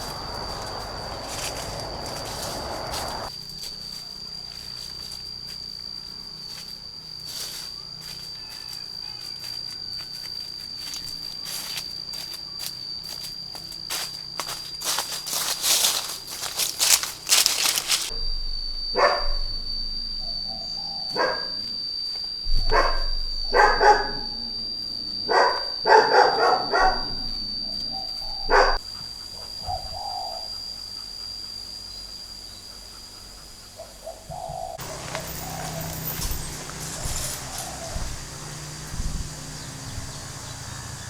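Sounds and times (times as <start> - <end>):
steady high thin tone: 0.0 - 3.3, 14.1 - 28.8, 34.8 - 41.0
dog barking: 19.0 - 19.5, 21.1 - 21.8, 22.6 - 24.6, 25.3 - 28.8.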